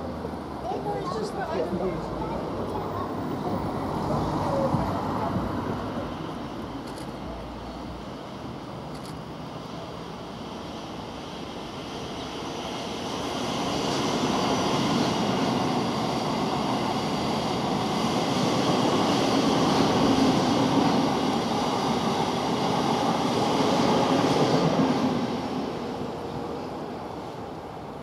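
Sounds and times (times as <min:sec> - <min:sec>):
train wheels rumbling on rail: 0:09.0 - 0:27.9.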